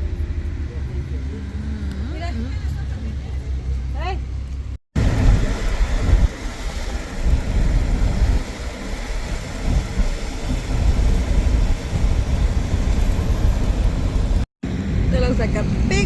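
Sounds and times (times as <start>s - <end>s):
road noise: 0.0s - 16.0s
wind buffeting microphone: 5.0s - 16.0s.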